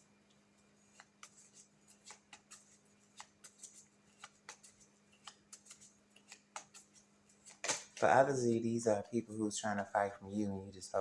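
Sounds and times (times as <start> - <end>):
low steady hum: 0.0 - 11.0
cards being shuffled: 0.8 - 8.1.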